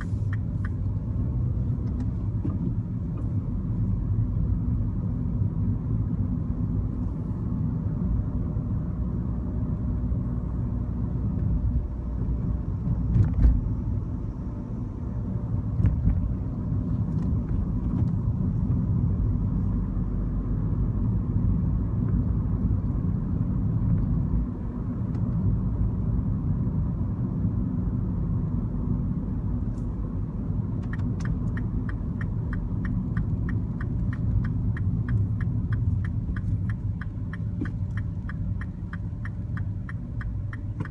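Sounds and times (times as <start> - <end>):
turn signal ticking: 0.0 - 3.7, 30.6 - 40.9
car engine and road noise: 0.0 - 40.9.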